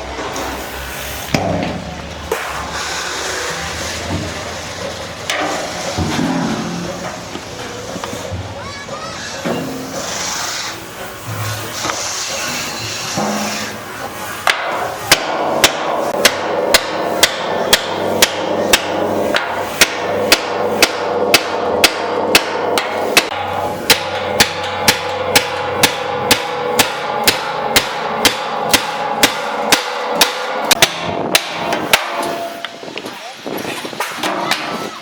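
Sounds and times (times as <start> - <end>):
steady drone: 2.7 - 8.4, 9.4 - 32.9
hammer striking metal: 5.3 - 7.6, 11.3 - 32.9.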